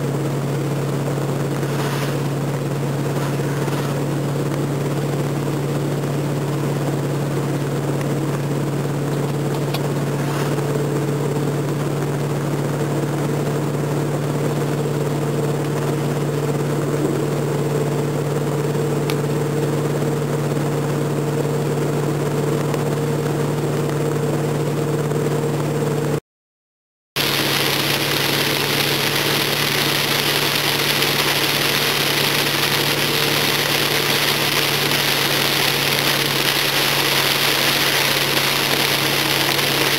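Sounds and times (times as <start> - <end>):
car engine running: 0.0 - 26.2, 27.2 - 39.9
tyre and water hiss: 1.6 - 2.4, 27.2 - 39.9.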